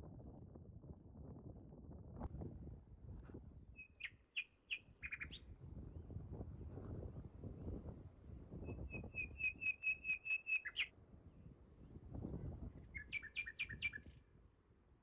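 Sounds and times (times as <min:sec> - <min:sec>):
songbird singing: 0:03.8 - 0:05.5, 0:08.7 - 0:10.9, 0:12.8 - 0:14.2.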